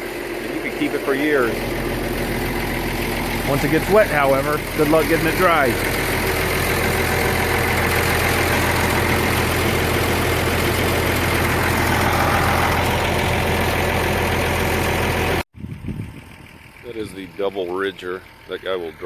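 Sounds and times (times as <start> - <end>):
heavy machinery engine idling: 0.0 - 19.0.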